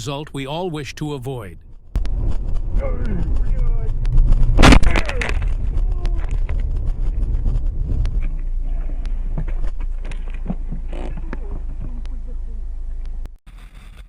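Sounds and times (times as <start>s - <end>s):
moving car rumble: 0.0s - 14.0s
car crashing into deer: 2.2s - 10.7s.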